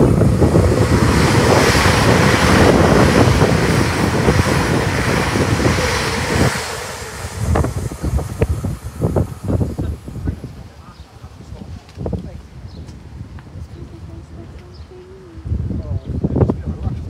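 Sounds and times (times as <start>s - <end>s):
train passing at speed: 0.0s - 12.1s
wind buffeting microphone: 0.0s - 17.0s.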